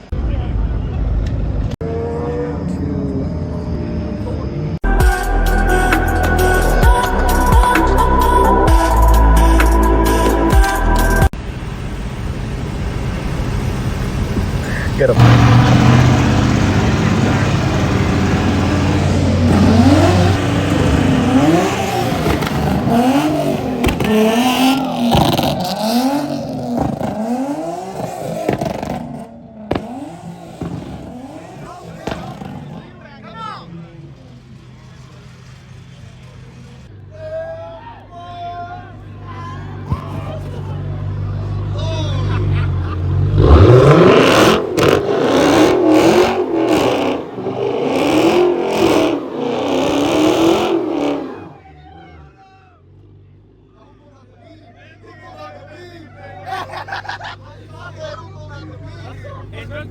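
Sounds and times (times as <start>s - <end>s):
engine revving hard: 14.7s - 33.0s, 42.2s - 51.6s
sharp cracks: 23.8s - 32.9s.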